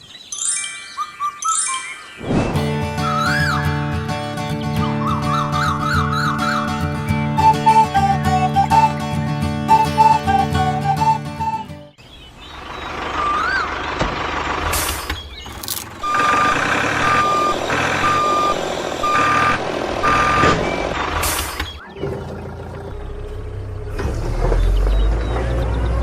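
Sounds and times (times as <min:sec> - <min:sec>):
steady vehicle noise: 0:02.2 - 0:26.0
vehicle reversing alarm beeping: 0:12.9 - 0:14.0, 0:16.0 - 0:21.9, 0:24.3 - 0:26.0.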